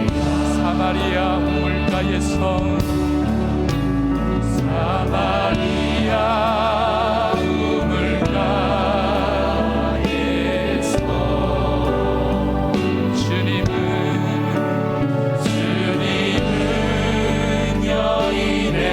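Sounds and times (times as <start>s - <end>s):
band playing worship song: 0.0s - 18.9s
sustained sung notes: 0.0s - 18.9s.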